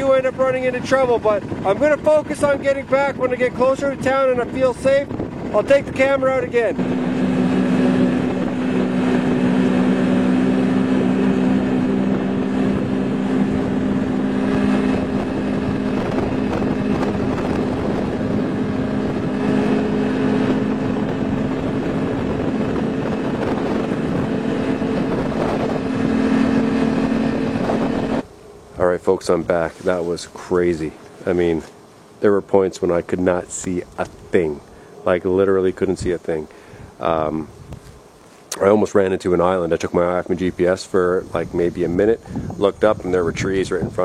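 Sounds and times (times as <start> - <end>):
snowmobile engine droning: 0.0 - 28.3
rushing noise: 4.2 - 28.8.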